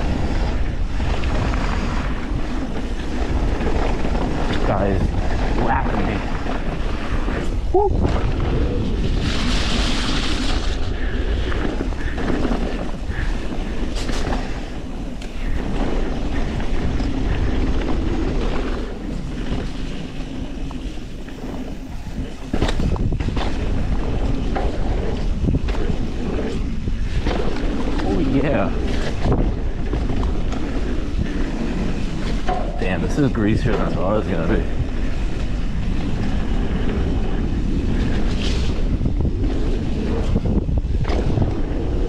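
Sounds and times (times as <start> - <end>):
tyres rumbling on dirt: 0.0 - 42.0
wind buffeting microphone: 0.0 - 42.0
bike knocks and rattles: 11.5 - 35.2.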